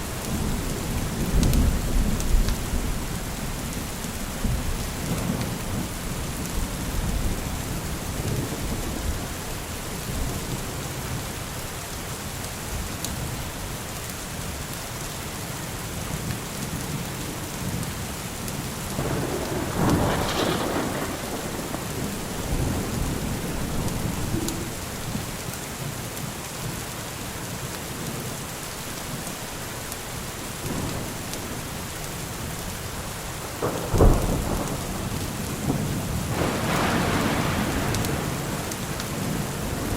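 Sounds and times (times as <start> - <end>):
steady rain: 0.0 - 39.9
thunder rumbling: 18.9 - 25.4, 30.7 - 39.9
sharp thunder crack: 19.0 - 25.1, 33.6 - 39.9.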